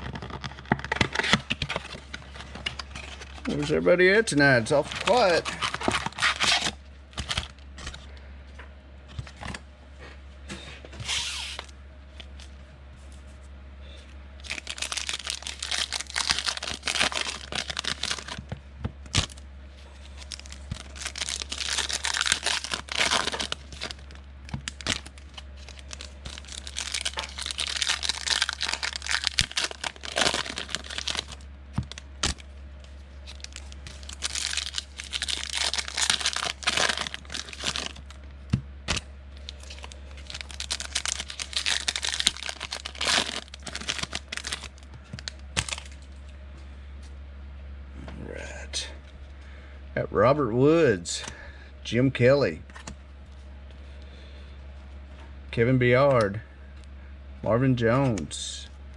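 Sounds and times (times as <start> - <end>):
wrappers torn and crinkled: 0.0 - 3.7, 4.6 - 8.0, 11.0 - 12.5, 14.4 - 19.4, 20.0 - 38.2, 38.8 - 46.2
steady low hum: 0.0 - 58.9.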